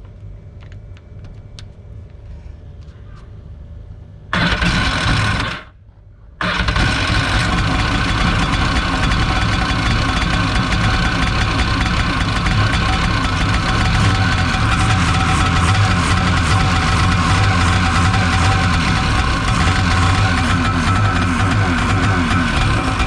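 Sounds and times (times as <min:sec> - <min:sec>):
jet ski engine starting: 0:04.3 - 0:05.7, 0:06.4 - 0:23.0.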